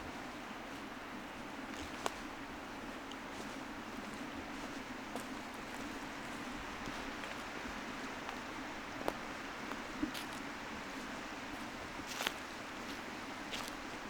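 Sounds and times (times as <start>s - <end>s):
faint footstep clicks: 1.7s - 2.3s, 11.6s - 13.9s.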